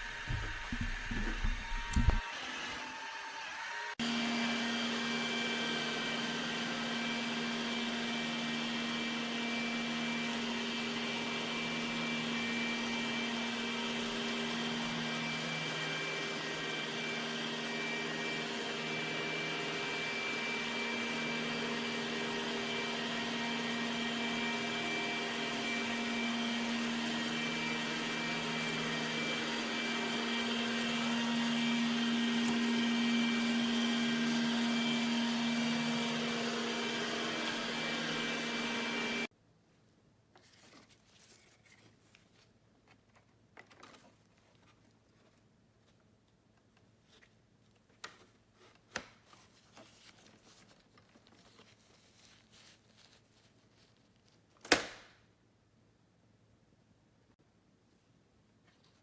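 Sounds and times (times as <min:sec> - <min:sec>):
robot vacuum motor hum: 0:00.0 - 0:02.8, 0:03.4 - 0:39.3.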